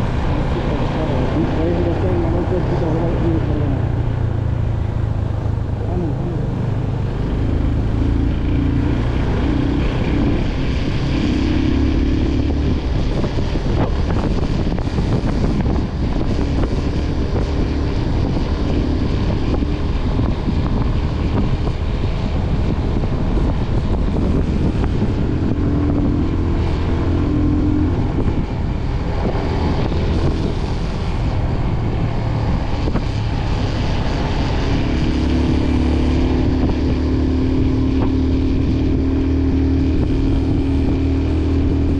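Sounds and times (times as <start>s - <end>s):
wind rushing over microphone: 0.0s - 41.9s.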